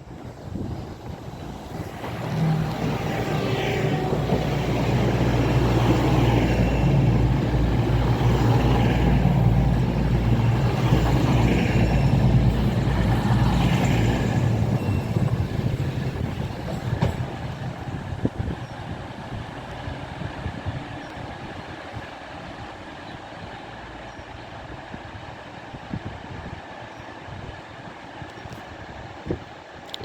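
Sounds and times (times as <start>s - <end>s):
diesel train engines humming: 0.0s - 29.7s
wheel and rail noise: 0.0s - 30.0s.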